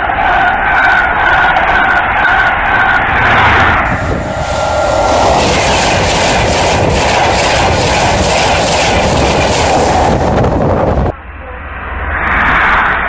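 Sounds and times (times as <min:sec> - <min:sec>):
train rushing past: 0:00.7 - 0:11.1.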